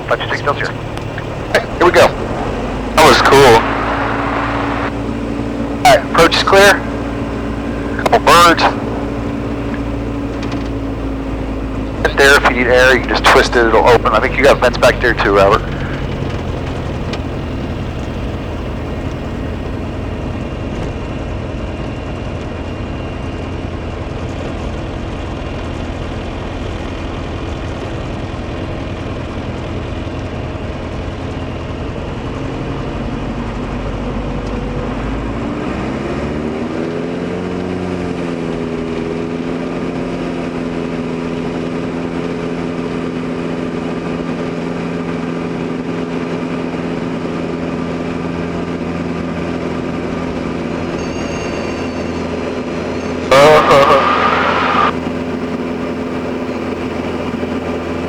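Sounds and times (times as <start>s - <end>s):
airplane engine droning in cabin: 0.0s - 35.6s, 53.3s - 58.0s.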